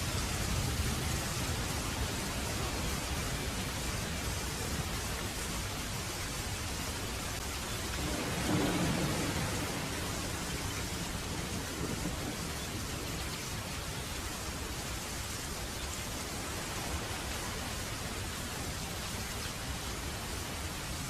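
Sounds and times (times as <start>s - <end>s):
heavy rain falling: 0.0s - 21.0s
distant thunder rumbling: 7.5s - 13.6s.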